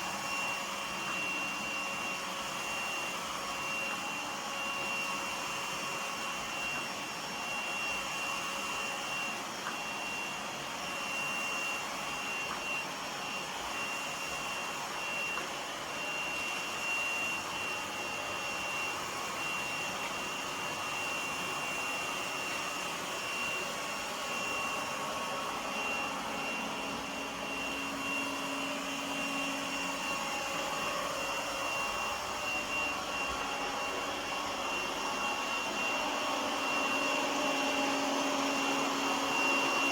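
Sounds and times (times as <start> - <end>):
robot vacuum whirring: 0.0 - 39.9.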